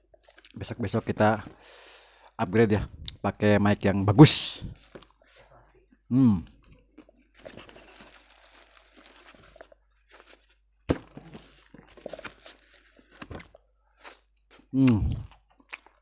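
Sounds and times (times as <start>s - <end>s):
chewing crispy food: 11.6s - 16.0s.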